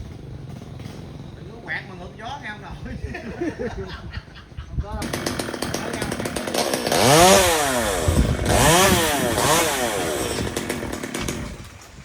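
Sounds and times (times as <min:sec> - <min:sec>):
chainsaw revving: 0:00.0 - 0:01.4, 0:05.0 - 0:11.8.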